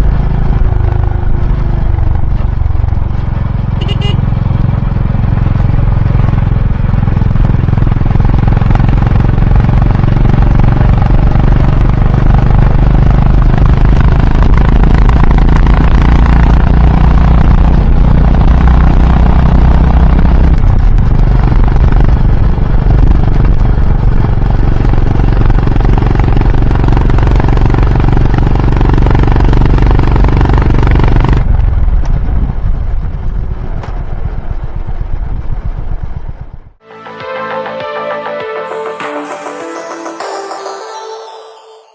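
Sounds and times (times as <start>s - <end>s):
motorcycle engine rumbling: 0.0s - 36.8s.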